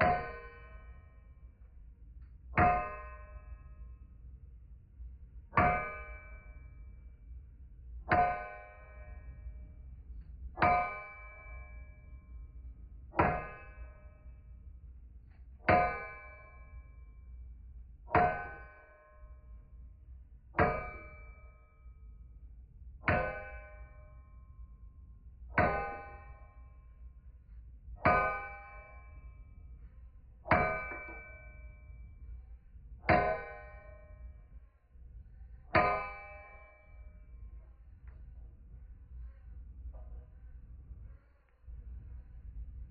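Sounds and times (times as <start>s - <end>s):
hammer striking steel on anvil: 2.6s - 3.7s, 8.1s - 9.4s, 10.6s - 12.0s, 13.2s - 14.0s, 15.7s - 16.8s, 18.2s - 19.4s, 20.6s - 21.5s, 23.1s - 24.3s, 25.6s - 26.7s, 28.1s - 29.4s, 30.5s - 32.0s, 33.1s - 34.2s, 35.8s - 37.1s.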